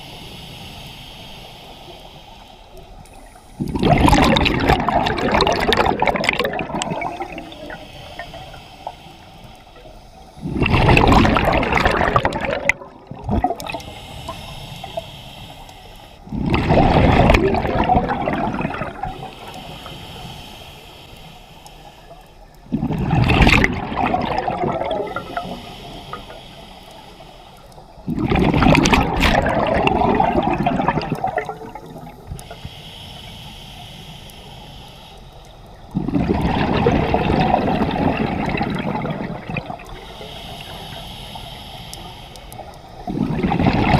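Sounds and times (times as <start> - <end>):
diver breathing through regulator: 0.0 - 3.8, 4.4 - 22.8, 24.0 - 36.8, 37.5 - 43.7
exhaled bubbles rushing: 3.6 - 7.8, 10.4 - 13.9, 16.3 - 19.6, 22.6 - 25.6, 28.0 - 32.3, 35.9 - 40.0, 43.0 - 43.9.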